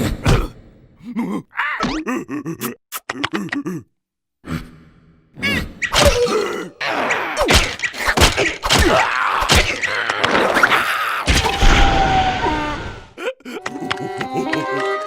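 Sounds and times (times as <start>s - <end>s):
cartoon character groans and grunts: 0.1s - 4.7s, 5.4s - 7.5s
thumps and whacks: 7.4s - 11.9s.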